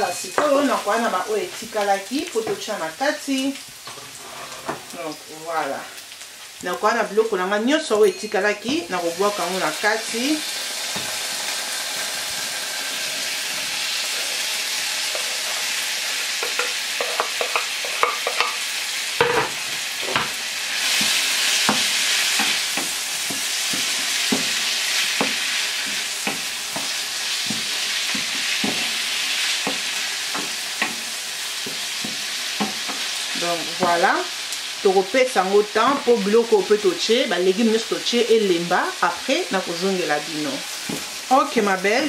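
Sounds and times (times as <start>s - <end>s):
vegetables sizzling in oil: 0.0s - 42.0s
spatula tapping and scraping pan: 16.2s - 18.6s, 19.2s - 33.2s.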